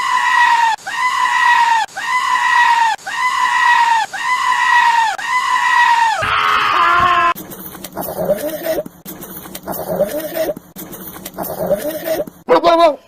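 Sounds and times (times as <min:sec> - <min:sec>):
goat screaming: 0:00.0 - 0:07.4.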